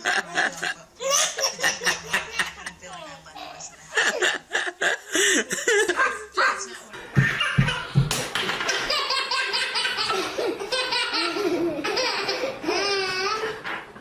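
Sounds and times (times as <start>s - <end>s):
baby laughing: 3.9s - 8.0s, 8.6s - 13.6s.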